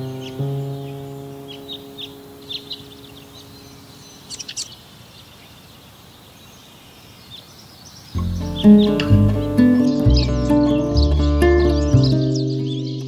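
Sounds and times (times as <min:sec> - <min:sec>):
held music chord: 0:00.0 - 0:04.2, 0:08.2 - 0:13.0
faint steady hiss: 0:00.0 - 0:11.0
high bird chirps: 0:00.0 - 0:13.0.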